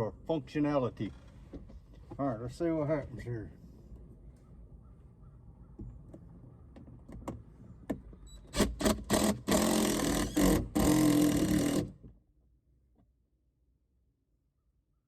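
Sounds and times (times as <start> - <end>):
power drill running: 8.6 - 11.9.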